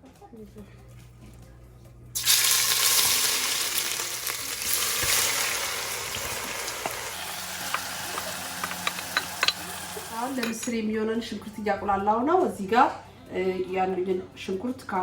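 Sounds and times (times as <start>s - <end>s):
onions sizzling in hot pan: 2.2s - 10.4s.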